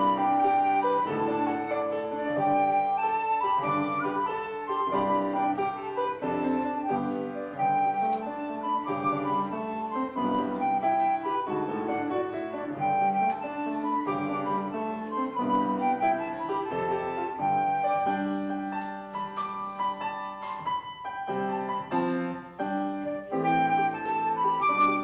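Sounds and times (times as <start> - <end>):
flute-toned melody: 0.0 - 25.0
keyboard accompaniment: 0.0 - 25.0.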